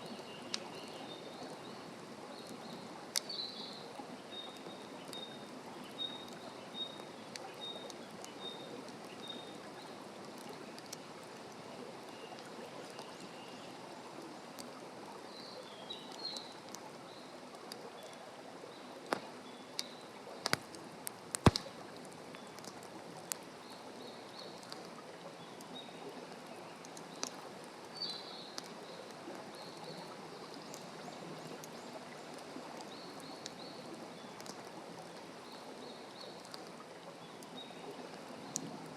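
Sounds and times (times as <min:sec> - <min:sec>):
wood fire crackling: 0:19.0 - 0:23.6.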